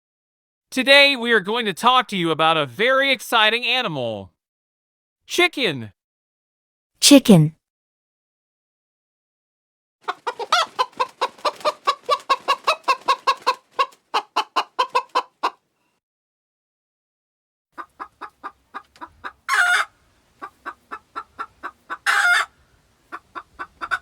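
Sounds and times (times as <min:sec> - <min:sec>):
chicken clucking: 0:10.0 - 0:15.6, 0:17.8 - 0:24.0
chicken squawk: 0:10.0 - 0:15.6, 0:17.8 - 0:24.0.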